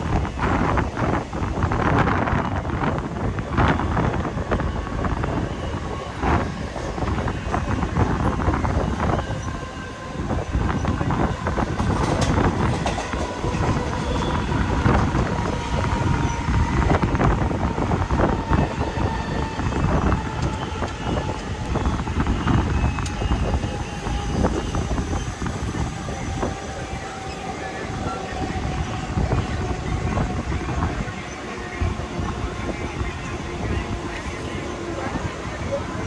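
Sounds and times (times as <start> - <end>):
train wheels clattering on rails: 10.4 - 32.6.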